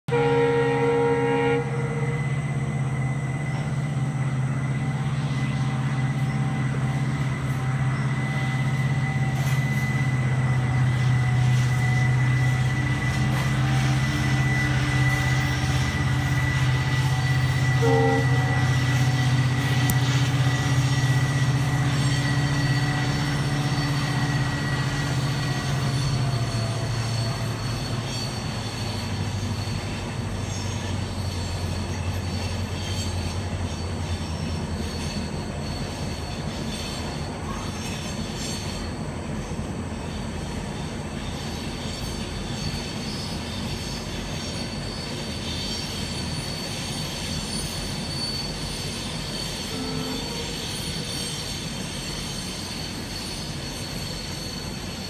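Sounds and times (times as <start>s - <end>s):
train running drone: 0.0s - 55.0s
train horn toot: 0.1s - 3.7s, 4.6s - 30.0s, 49.6s - 51.4s.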